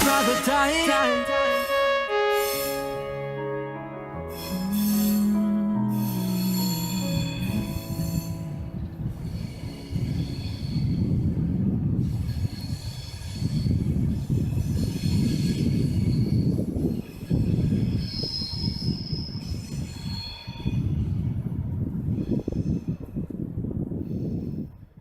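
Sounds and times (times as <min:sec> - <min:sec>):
low rumble of train wheels: 0:04.2 - 0:25.0
train wheels squealing: 0:09.2 - 0:11.3, 0:12.0 - 0:21.4.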